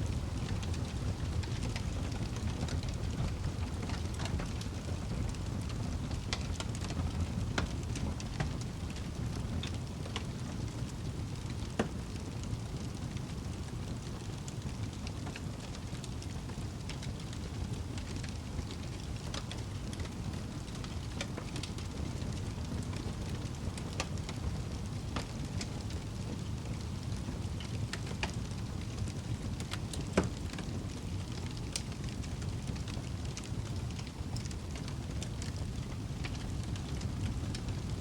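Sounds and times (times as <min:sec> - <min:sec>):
fire crackling and popping: 0:00.0 - 0:38.0
fire rumbling in fireplace: 0:00.0 - 0:38.0.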